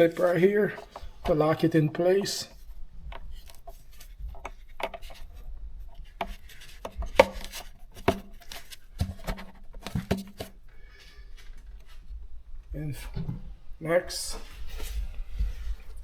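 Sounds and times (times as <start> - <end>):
plastic parts clicking and knocking: 3.1 - 5.3, 6.0 - 10.6.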